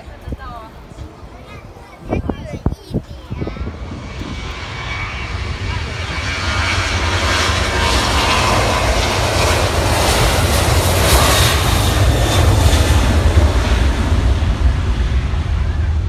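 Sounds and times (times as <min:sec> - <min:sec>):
airplane engines roaring: 0:00.0 - 0:16.0.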